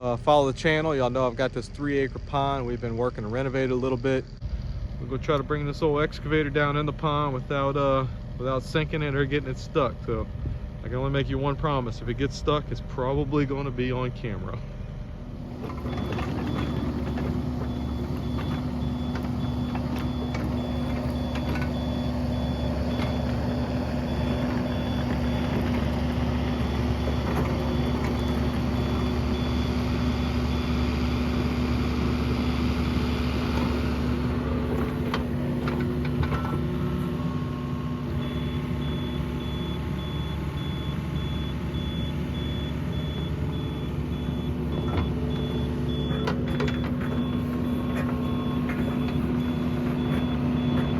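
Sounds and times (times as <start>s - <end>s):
diesel engine running: 0.0s - 50.9s
travel alarm beeping: 15.6s - 31.1s, 32.4s - 50.9s.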